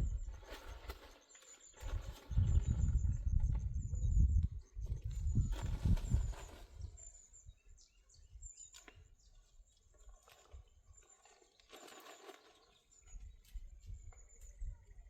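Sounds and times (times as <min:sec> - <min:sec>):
faint high chirps: 0:12.2 - 0:15.0.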